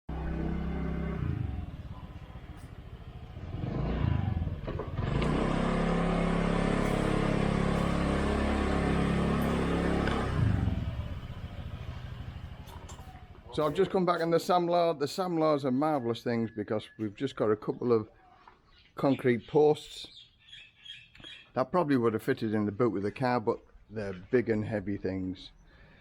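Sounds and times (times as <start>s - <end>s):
motorcycle engine revving: 0.1s - 13.8s.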